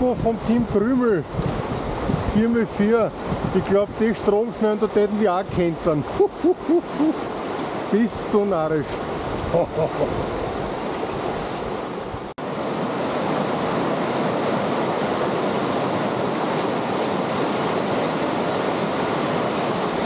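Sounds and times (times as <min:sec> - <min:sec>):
rushing white water: 0:00.0 - 0:20.0.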